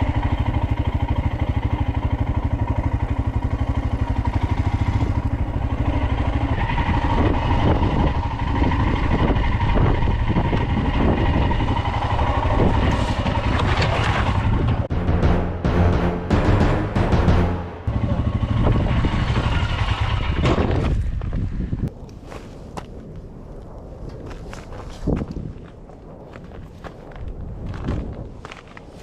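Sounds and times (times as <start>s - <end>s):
motorcycle engine running: 0.0s - 13.6s, 14.3s - 20.4s
wind noise on microphone: 6.8s - 14.9s, 20.2s - 29.0s.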